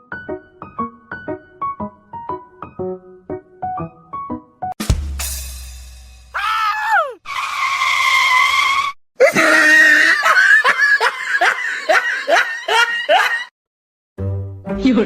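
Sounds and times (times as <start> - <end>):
person giving a held cry: 6.4 - 7.2.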